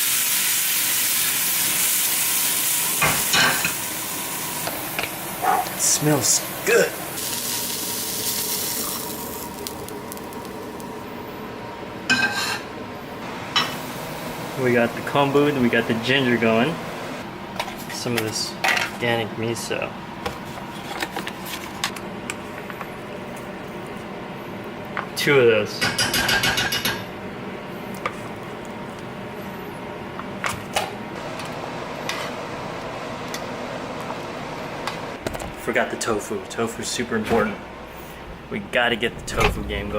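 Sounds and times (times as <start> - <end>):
mushrooms sizzling in oil pan: 0.0 - 5.4, 7.0 - 11.0
range hood fan hum: 0.0 - 39.9.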